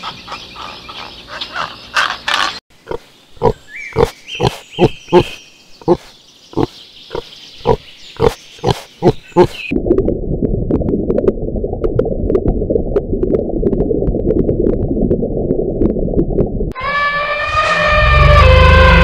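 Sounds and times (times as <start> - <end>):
pig grunting: 1.6 - 9.7
underwater low rushing rumble: 9.7 - 16.7.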